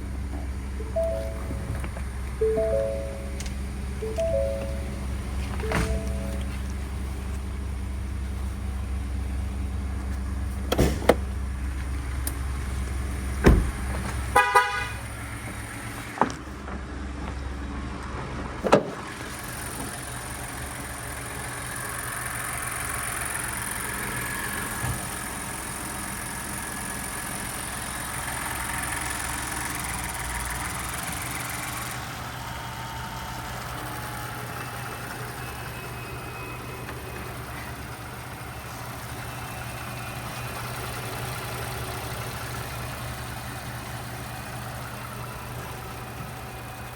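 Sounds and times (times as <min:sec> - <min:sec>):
vehicle engine running: 0:00.0 - 0:46.9
truck door thumps and clicks: 0:05.6 - 0:06.4, 0:10.7 - 0:11.3, 0:13.4 - 0:14.3
truck horn toot: 0:14.3 - 0:15.2.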